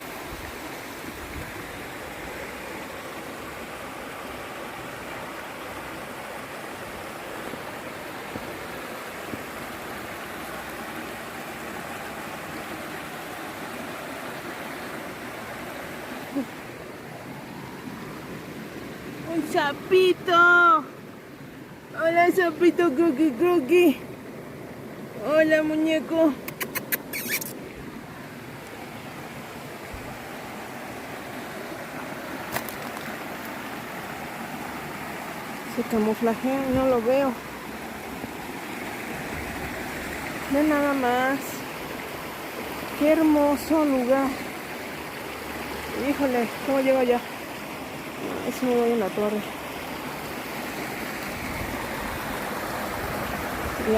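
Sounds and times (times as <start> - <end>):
river water rushing: 0.0 - 53.9
sharp click: 26.4 - 27.6.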